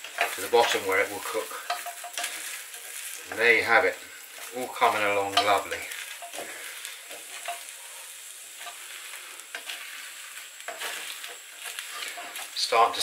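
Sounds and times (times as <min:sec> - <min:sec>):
omelette sizzling in pan: 0:00.0 - 0:13.0
spatula clicking on pan: 0:01.6 - 0:03.1.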